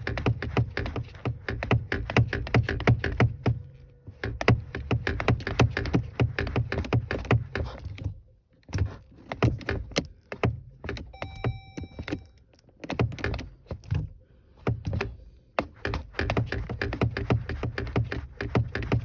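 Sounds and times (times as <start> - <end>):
knocks and thuds of pedal pumping: 0.0 - 19.0
electronic chime: 11.1 - 12.3.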